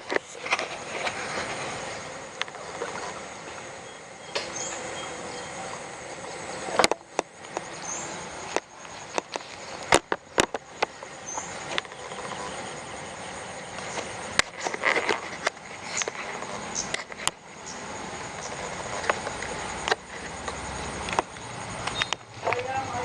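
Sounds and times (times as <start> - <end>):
steady background hiss: 0.0 - 23.0
sharp clicks and knocks: 8.5 - 12.4.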